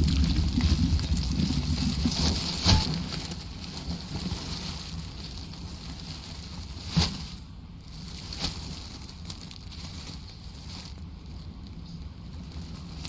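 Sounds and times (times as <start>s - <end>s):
low rumbling ambience: 0.0s - 13.0s.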